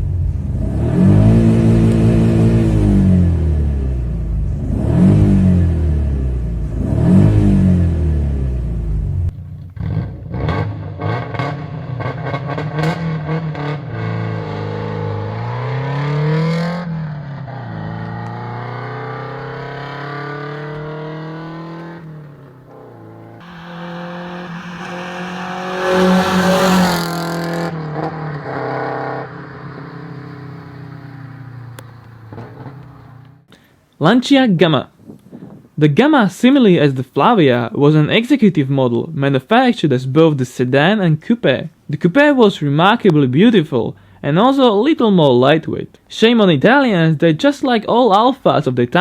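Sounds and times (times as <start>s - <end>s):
car engine revving: 0.0s - 33.5s.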